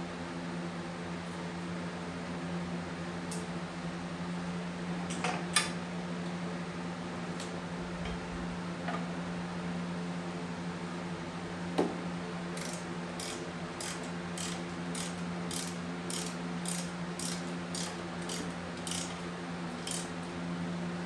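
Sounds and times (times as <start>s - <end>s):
ratchet tool clicking strokes: 12.6s - 19.2s, 19.8s - 20.1s.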